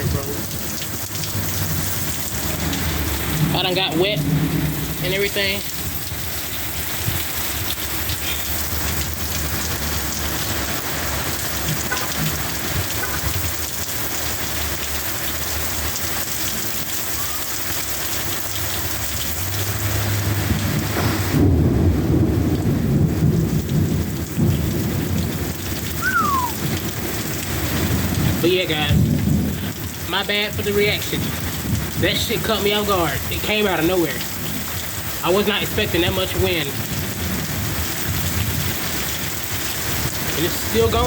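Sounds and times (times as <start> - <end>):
heavy rain pouring: 0.0 - 41.0
deep thunder rumble: 1.6 - 6.1, 20.4 - 30.1, 31.2 - 32.2.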